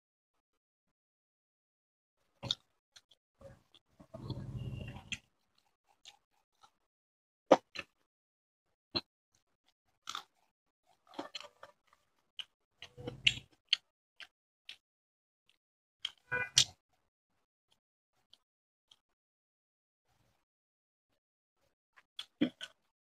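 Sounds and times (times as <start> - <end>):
person chewing and smacking: 2.4 - 3.1, 5.1 - 6.8, 7.5 - 8.0, 10.0 - 14.8, 16.0 - 16.7, 22.2 - 22.9.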